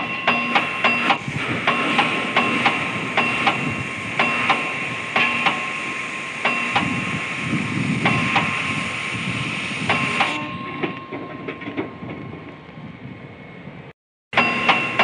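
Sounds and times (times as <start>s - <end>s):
hammer striking steel on anvil: 0.0s - 7.0s, 14.3s - 15.0s
steady rushing noise: 0.0s - 11.0s.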